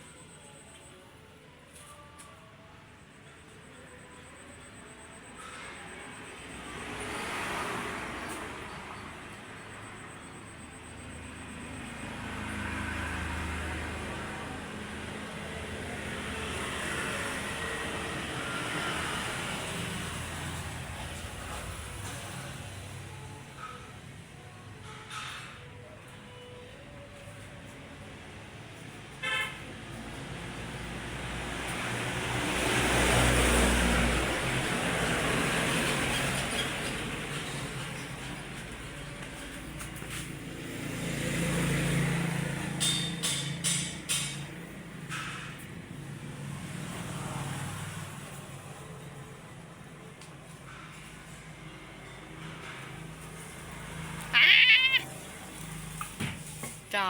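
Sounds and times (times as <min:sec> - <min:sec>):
engine hum with road noise: 0:00.0 - 0:57.0
vehicle passing by: 0:05.4 - 0:23.2, 0:29.7 - 0:57.0
vehicle horn toot: 0:29.2 - 0:29.8.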